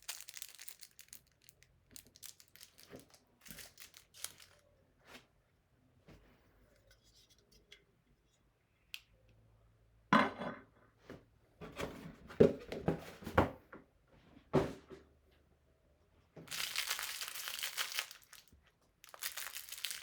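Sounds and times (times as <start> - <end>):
packaging rustling: 0.0 - 4.6, 16.5 - 20.0
box and plastic tray rattling: 16.5 - 18.4.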